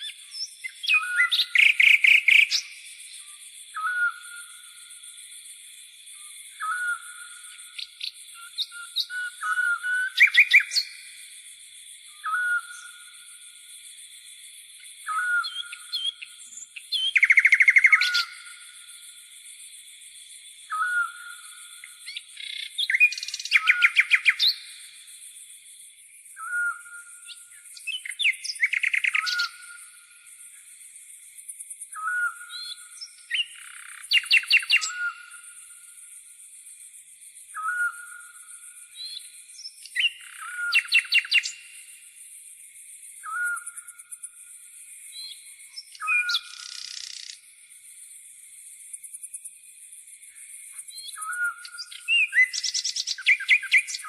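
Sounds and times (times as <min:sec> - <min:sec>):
rapid trilled bird song: 0:00.0 - 0:03.2, 0:06.6 - 0:11.2, 0:15.0 - 0:18.8, 0:20.6 - 0:24.8, 0:26.3 - 0:29.9, 0:32.0 - 0:35.2, 0:38.9 - 0:41.8, 0:45.1 - 0:47.5, 0:50.8 - 0:54.0
high-pitched insect buzz: 0:45.8 - 0:51.0.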